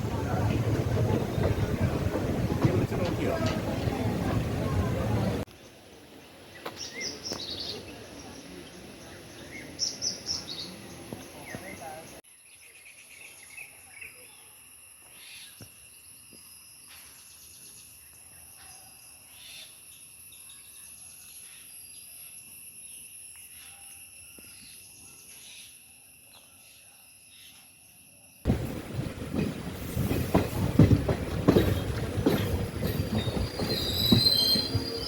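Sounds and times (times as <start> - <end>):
train running on rails: 0.0 - 5.5, 28.5 - 35.0
insects chirping: 0.0 - 35.0.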